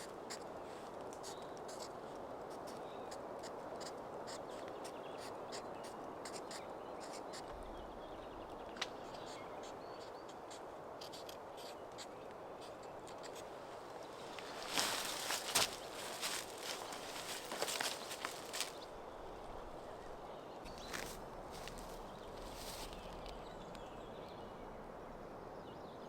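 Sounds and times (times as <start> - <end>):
steady rush of noise: 10.3 - 24.0.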